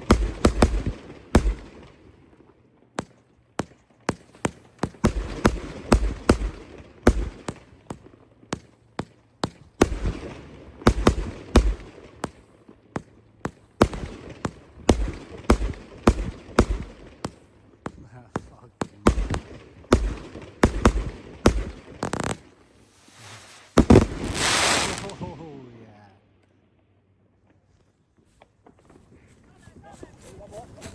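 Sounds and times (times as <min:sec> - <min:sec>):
fireworks crackling: 0:00.0 - 0:02.1, 0:18.5 - 0:25.5
fireworks bangs: 0:00.0 - 0:02.2, 0:03.0 - 0:08.7, 0:09.5 - 0:25.5.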